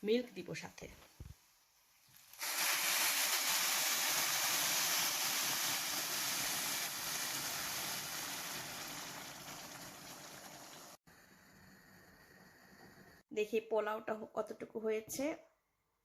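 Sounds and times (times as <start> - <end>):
hiss and sizzle: 0.6 - 13.2
water poured into pot: 2.0 - 11.0.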